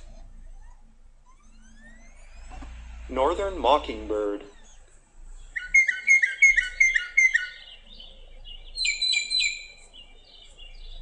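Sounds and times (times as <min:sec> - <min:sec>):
mockingbird singing: 0:05.4 - 0:11.0.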